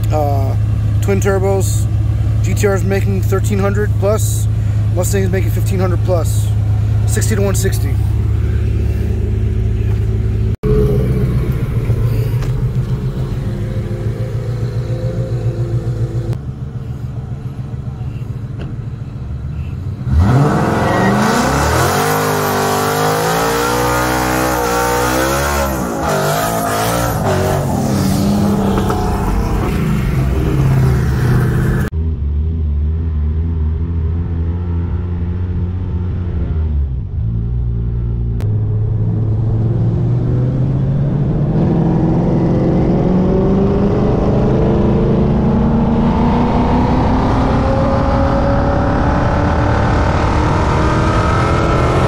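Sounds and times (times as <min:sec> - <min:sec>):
car engines rumbling: 0:00.0 - 0:52.0
cars accelerating hard: 0:20.0 - 0:32.5, 0:38.4 - 0:52.0.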